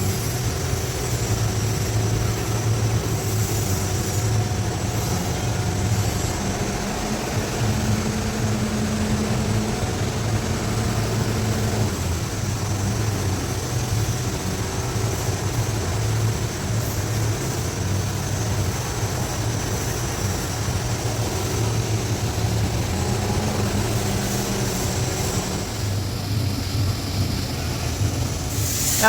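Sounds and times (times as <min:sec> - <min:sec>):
welding arc hissing: 0:00.0 - 0:29.0
low hum: 0:01.9 - 0:16.5.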